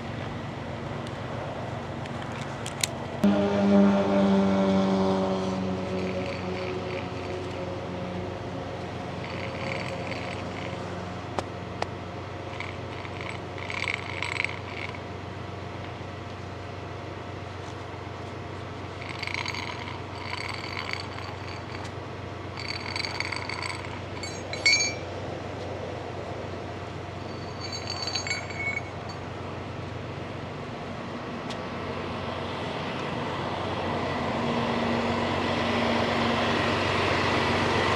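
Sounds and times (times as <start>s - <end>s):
engine hum: 0.0s - 37.9s
metallic clinks and scraping: 6.0s - 7.6s, 9.2s - 10.8s, 12.5s - 15.0s, 19.0s - 21.9s, 22.5s - 25.1s, 27.2s - 29.3s.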